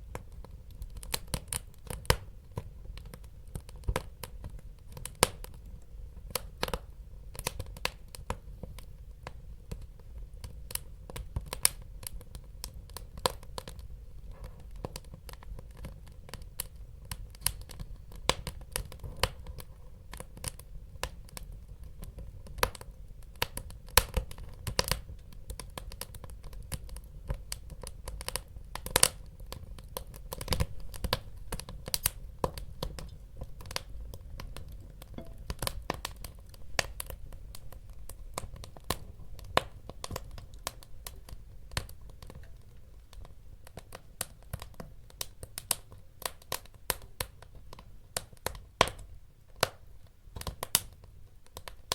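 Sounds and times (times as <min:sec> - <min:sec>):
low rumble of flames: 0:00.0 - 0:49.7
fire crackling and popping: 0:00.0 - 0:51.9.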